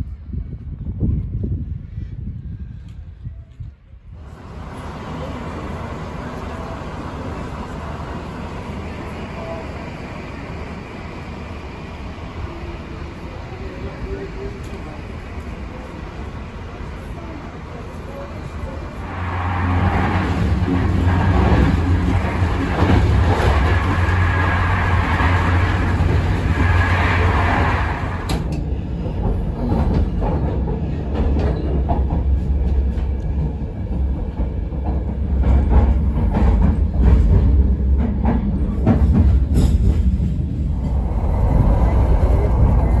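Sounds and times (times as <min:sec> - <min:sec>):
train rumble: 0:00.0 - 0:43.0
rushing noise: 0:18.5 - 0:29.4, 0:39.4 - 0:43.0.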